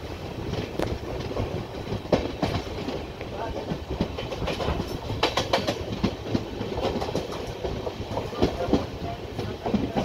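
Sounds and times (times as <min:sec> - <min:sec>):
train wheels rumbling on track: 0:00.0 - 0:10.0
wheels clacking over rail joints: 0:00.4 - 0:10.0.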